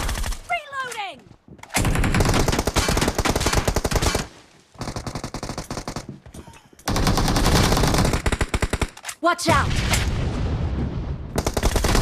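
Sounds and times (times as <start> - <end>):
automatic gunfire in rapid bursts: 1.8 - 6.0, 6.9 - 9.0, 11.4 - 12.0.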